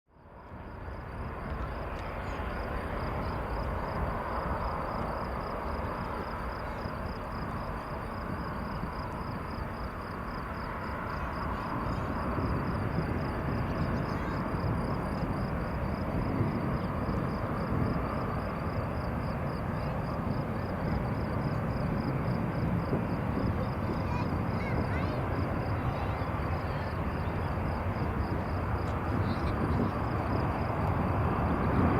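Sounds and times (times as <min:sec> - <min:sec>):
distant jet engines running: 0:00.2 - 0:31.9.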